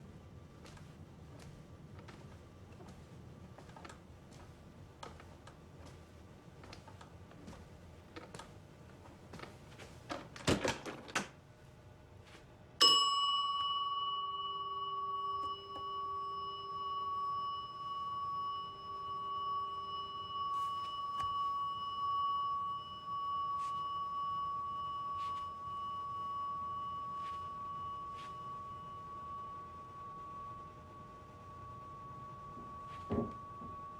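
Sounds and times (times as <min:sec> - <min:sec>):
soft steps on hard floor: 0:00.6 - 0:10.1, 0:32.6 - 0:33.8
service bell ringing: 0:12.8 - 0:33.9.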